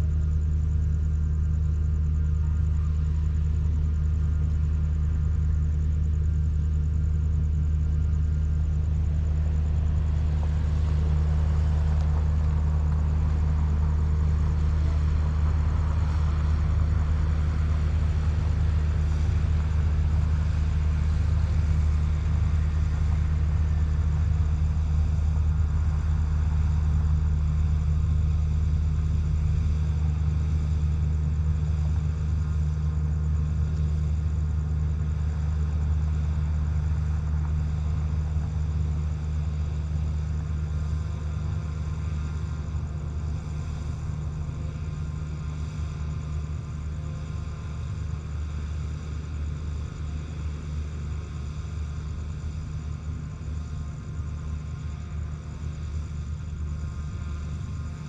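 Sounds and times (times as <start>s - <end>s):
diesel train engine drone: 0.0s - 58.0s
wind hiss: 8.0s - 58.0s.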